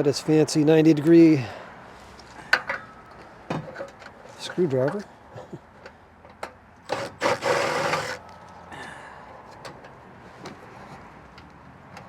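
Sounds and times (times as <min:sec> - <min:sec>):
screwdriver scraping metal: 0:06.9 - 0:08.2.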